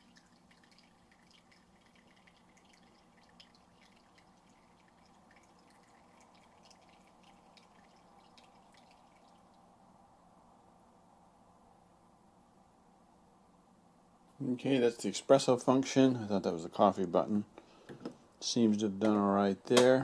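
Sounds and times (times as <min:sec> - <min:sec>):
coffee dripping into cup: 0:00.0 - 0:09.6
low steady hum: 0:00.0 - 0:19.9.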